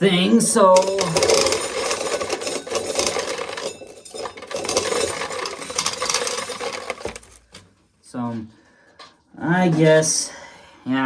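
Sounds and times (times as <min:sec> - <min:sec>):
corn kernels rattling: 0:00.0 - 0:07.6.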